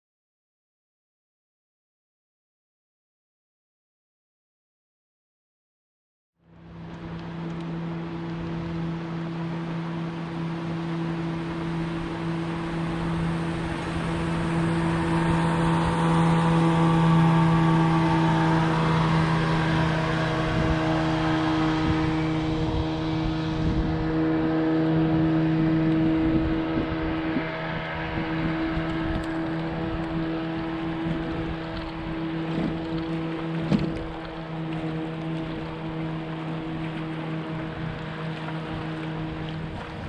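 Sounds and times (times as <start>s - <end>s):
boat motor running: 6.4s - 40.0s.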